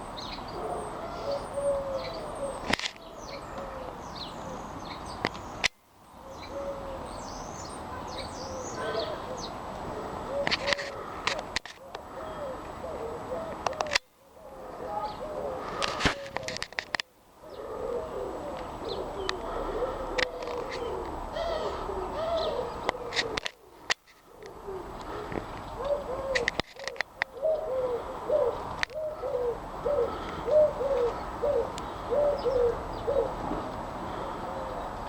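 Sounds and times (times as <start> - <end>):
pigeons cooing: 0.0 - 4.8, 6.2 - 35.0.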